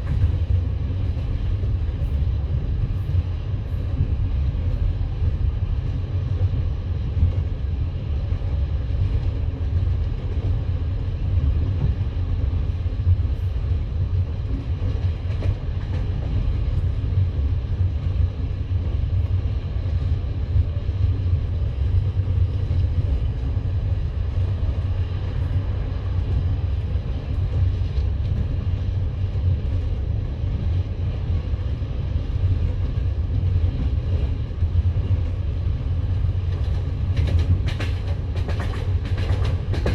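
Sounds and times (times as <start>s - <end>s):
train carriage rumbling on rails: 0.0s - 39.9s
train wheels clicking: 36.5s - 39.9s.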